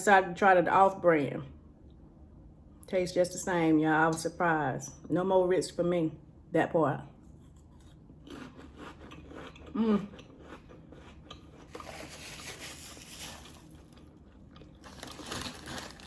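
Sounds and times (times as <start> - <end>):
crunching and chewing cracker: 7.4 - 16.0
person humming: 9.8 - 10.1.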